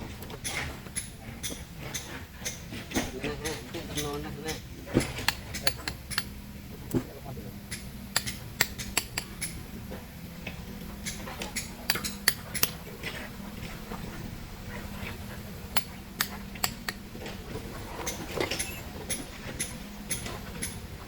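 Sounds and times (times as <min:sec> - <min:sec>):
low engine hum: 0:00.0 - 0:21.0
hand tools striking stone: 0:00.4 - 0:07.0, 0:07.7 - 0:09.6, 0:11.0 - 0:12.8, 0:15.7 - 0:17.0.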